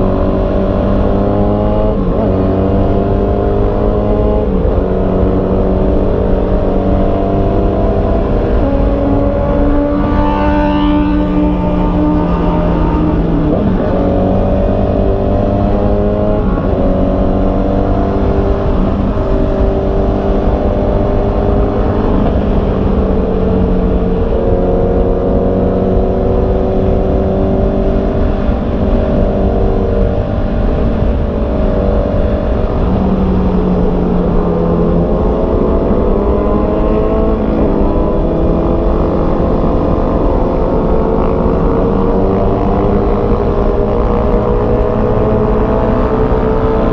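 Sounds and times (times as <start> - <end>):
motorcycle engine shifting gears: 0.0 - 46.9
wind noise on microphone: 0.0 - 46.9.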